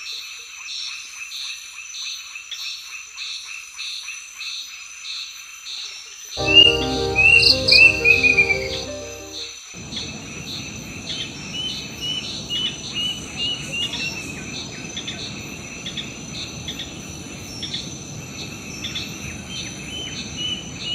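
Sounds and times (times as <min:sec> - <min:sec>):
music track: 0:06.4 - 0:09.6.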